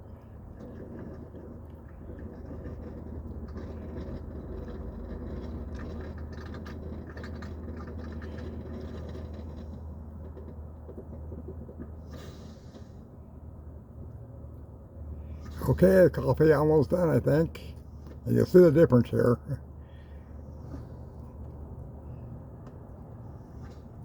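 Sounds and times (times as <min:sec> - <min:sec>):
coffee pot gurgling: 0:00.0 - 0:10.0.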